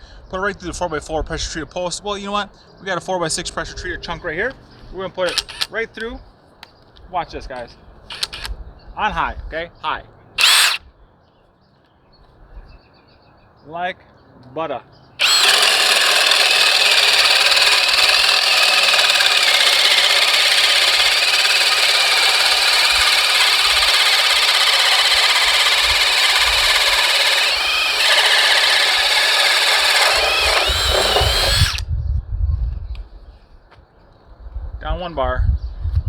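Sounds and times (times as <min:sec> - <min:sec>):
drill boring through wood: 0:05.3 - 0:05.7, 0:08.1 - 0:08.5, 0:10.4 - 0:10.8, 0:15.2 - 0:31.8.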